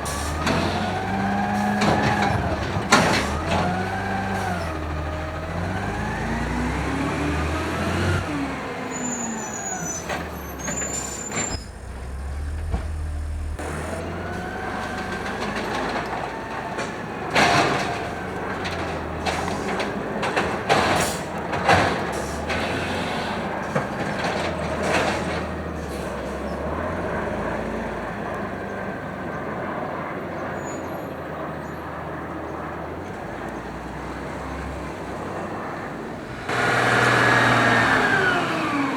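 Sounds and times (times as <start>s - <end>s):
cart slamming against hopper: 0.0s - 8.7s, 9.7s - 26.6s
garbage truck engine and hydraulics: 0.0s - 29.6s, 30.2s - 38.9s
high squeals: 8.2s - 15.7s.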